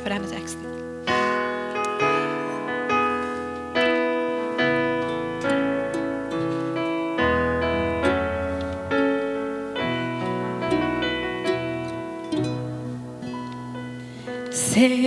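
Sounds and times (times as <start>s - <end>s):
slow gentle piano music: 0.0s - 15.0s.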